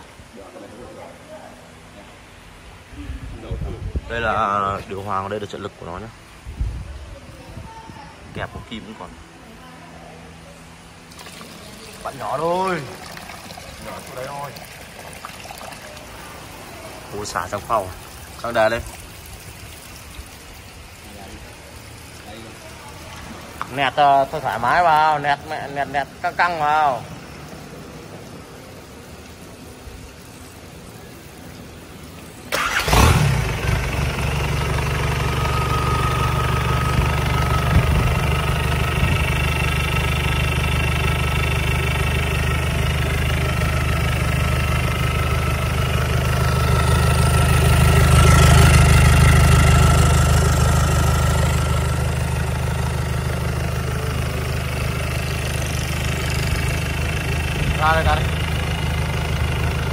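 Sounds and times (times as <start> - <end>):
diesel engine starting and revving: 10.8 - 20.0, 32.4 - 59.9.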